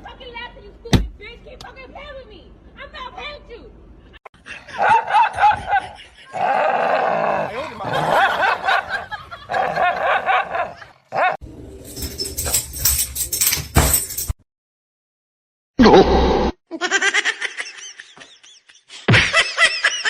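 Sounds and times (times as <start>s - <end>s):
knocks and rattles: 11.6s - 14.4s.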